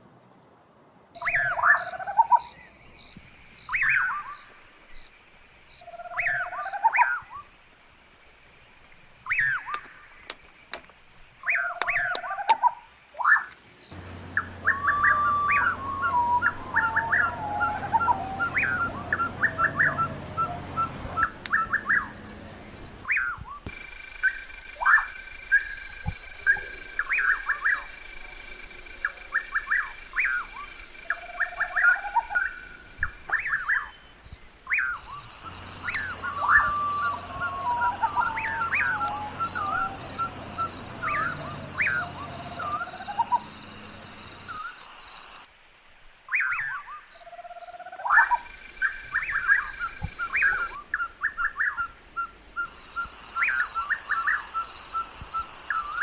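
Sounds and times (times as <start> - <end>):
steady high-pitched hum: 14.0 - 23.1
birds chirping and calling: 14.0 - 23.8, 24.8 - 34.0, 34.8 - 44.6, 48.0 - 51.9.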